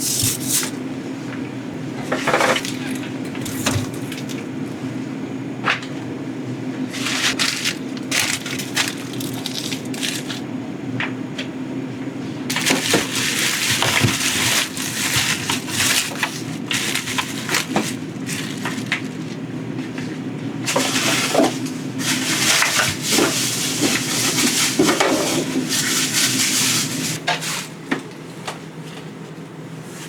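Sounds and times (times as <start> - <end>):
crinkling rustling handling noise: 0.0 - 0.8, 6.8 - 10.4, 12.5 - 28.2
steady low hum: 0.0 - 23.6.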